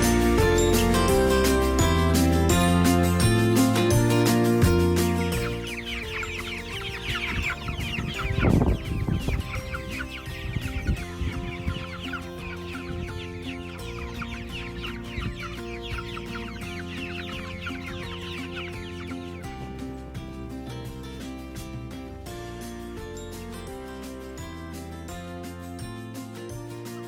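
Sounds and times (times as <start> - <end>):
chicks peeping: 0.0 - 21.1
soft background music: 0.0 - 27.0.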